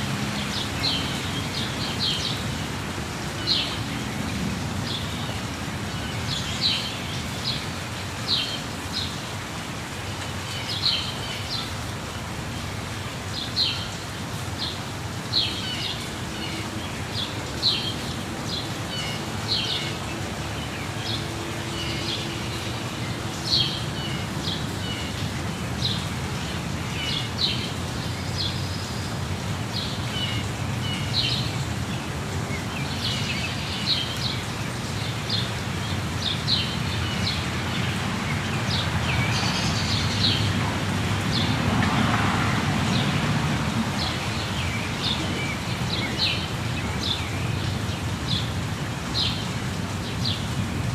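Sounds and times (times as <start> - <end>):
waterfall rushing: 0.0 - 50.9
birds chirping: 13.4 - 50.6.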